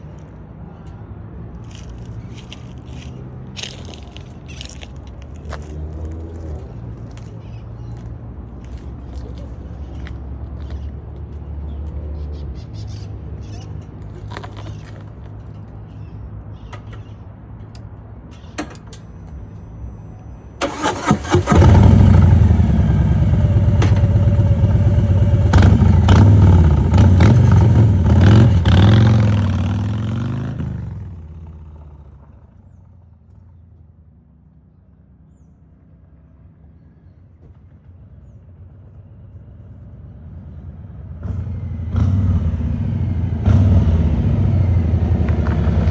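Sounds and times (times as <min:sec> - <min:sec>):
motorcycle engine idling and revving: 0:00.0 - 0:20.0, 0:20.6 - 0:45.9.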